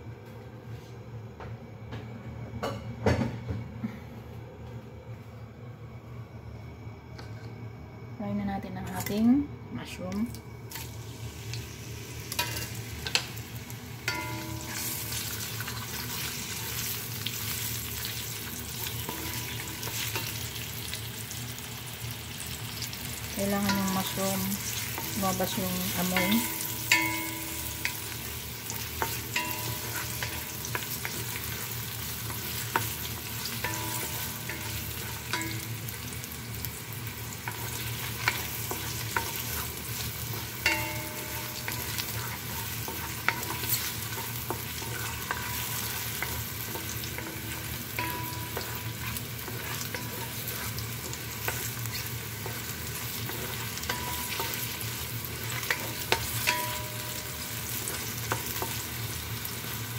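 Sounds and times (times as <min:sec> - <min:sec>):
mushrooms sizzling in hot oil: 0:08.8 - 0:59.9.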